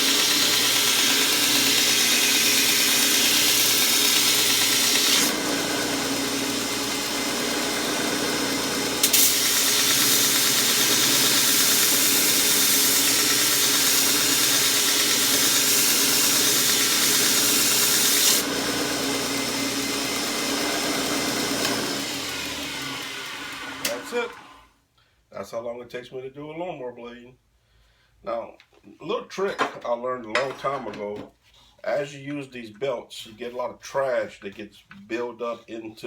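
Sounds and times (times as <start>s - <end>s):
belt sander motor hum: 0.0s - 24.6s.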